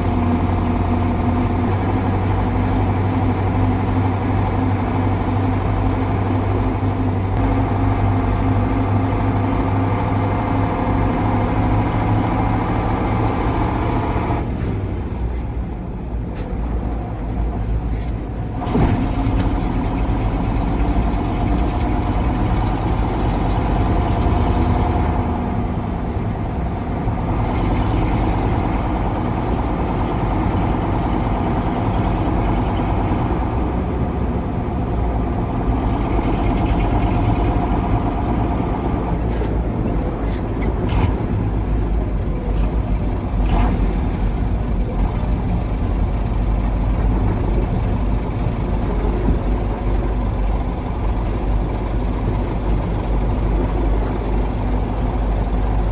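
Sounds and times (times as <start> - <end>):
truck diesel engine running: 0.0 - 55.9.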